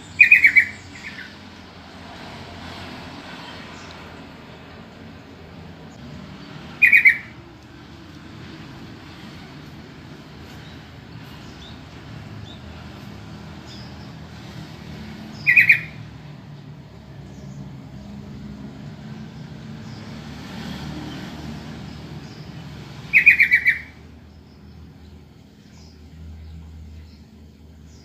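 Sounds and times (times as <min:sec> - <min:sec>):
bird chattering calls: 0:00.0 - 0:01.4, 0:06.7 - 0:07.5, 0:15.3 - 0:16.1, 0:23.1 - 0:24.0.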